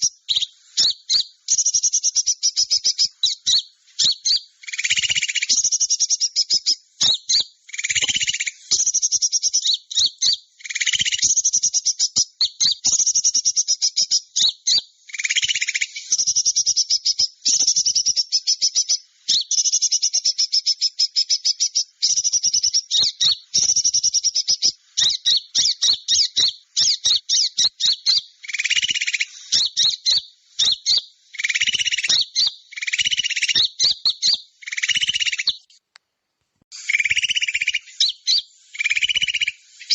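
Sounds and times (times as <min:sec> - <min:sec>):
high-pitched bird chirping trills: 0:00.0 - 0:35.8, 0:36.7 - 0:39.9
lower bird calls: 0:00.0 - 0:35.8, 0:36.7 - 0:39.9.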